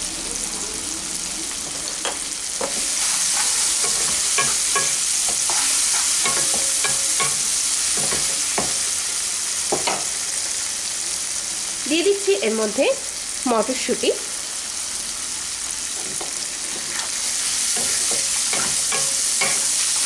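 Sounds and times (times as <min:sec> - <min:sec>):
onion and tomato sizzling in oil: 0:00.0 - 0:20.0
spatula scraping and tapping pan: 0:01.6 - 0:08.9, 0:16.0 - 0:20.0.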